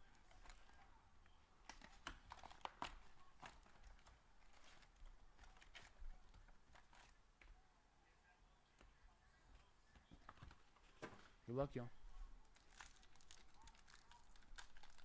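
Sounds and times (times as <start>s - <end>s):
card packaging crinkling: 1.7s - 7.2s, 12.4s - 15.0s.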